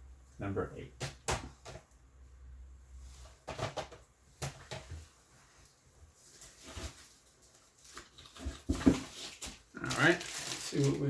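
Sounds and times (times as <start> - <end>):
plastic cases clicking and knocking: 3.4 - 4.9.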